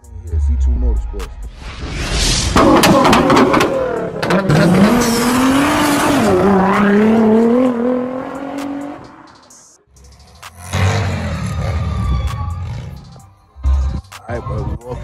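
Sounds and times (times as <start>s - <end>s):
car engine revving hard: 2.7s - 9.1s, 10.6s - 11.8s.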